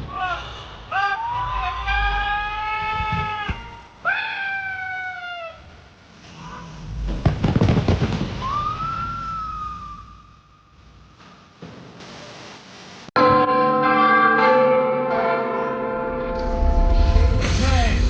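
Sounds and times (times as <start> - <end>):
crackling firework bangs: 6.8 - 10.1
sliding falling whistle tones: 8.3 - 10.6
long rising whistling tone: 8.4 - 10.6.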